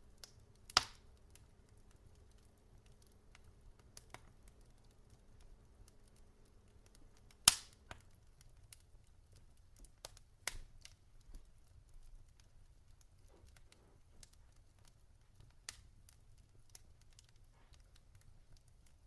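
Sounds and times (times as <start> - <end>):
logs crackling in fireplace: 0.0 - 19.0
fire popping loudly: 0.2 - 8.9.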